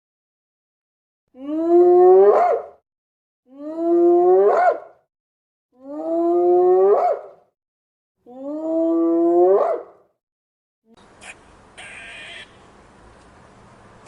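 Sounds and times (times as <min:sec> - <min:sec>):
animal calling with rising pitch: 0:11.2 - 0:12.6.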